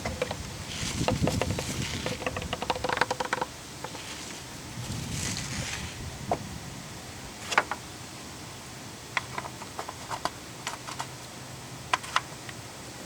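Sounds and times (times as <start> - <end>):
low background hiss: 0.0 - 13.0.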